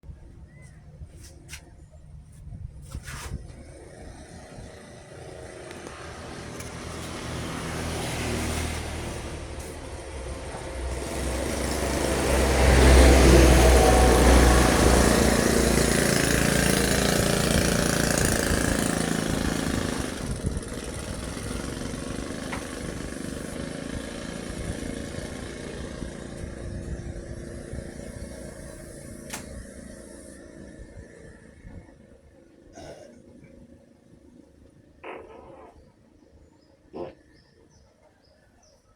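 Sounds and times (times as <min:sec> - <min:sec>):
truck driving past: 0:03.7 - 0:31.1.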